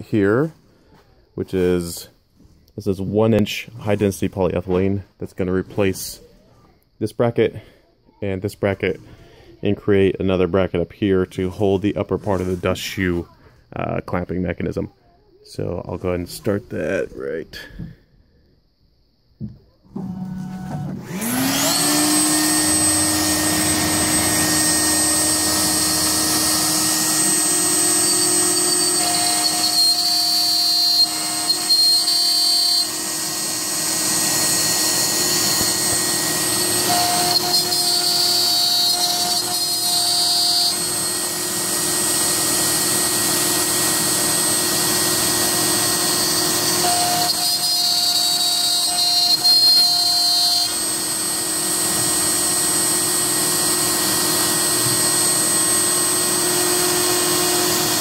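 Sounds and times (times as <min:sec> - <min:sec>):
router spindle whining: 0:20.0 - 0:58.0
higher cutting tone: 0:21.0 - 0:43.2.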